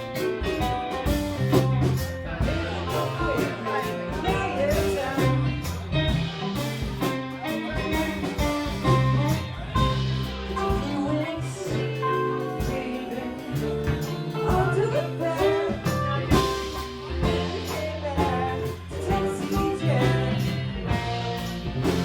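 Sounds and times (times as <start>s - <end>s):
bass guitar: 0.0s - 22.0s
drum kit: 0.0s - 22.0s
electric guitar: 0.0s - 22.0s
person singing: 2.4s - 5.9s, 10.6s - 21.2s.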